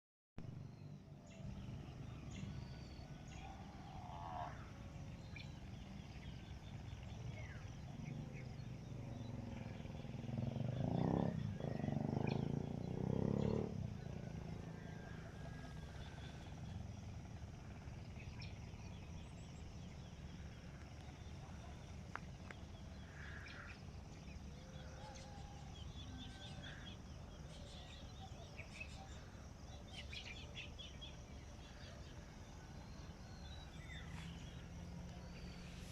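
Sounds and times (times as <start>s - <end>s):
low animal-like sound: 3.0s - 5.8s, 6.9s - 29.2s
steady low rumble: 13.6s - 35.9s.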